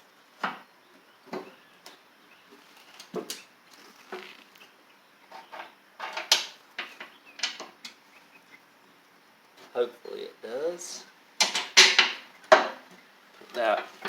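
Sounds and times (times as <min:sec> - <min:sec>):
clicks and knocks of mower parts: 0:02.8 - 0:04.6, 0:05.3 - 0:08.0, 0:11.4 - 0:14.0.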